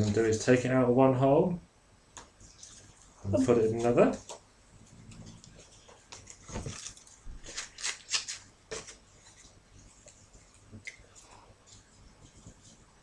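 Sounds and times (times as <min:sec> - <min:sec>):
faint ticks and scrapes: 0:02.2 - 0:07.2, 0:09.1 - 0:13.0.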